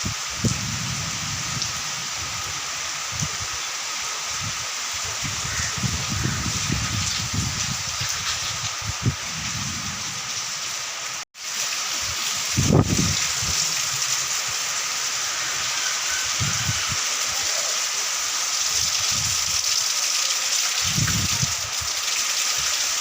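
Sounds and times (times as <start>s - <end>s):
wind buffeting microphone: 0.0s - 3.6s, 4.4s - 10.4s, 12.0s - 14.0s, 20.8s - 22.0s
heavy rain pouring: 0.0s - 23.0s.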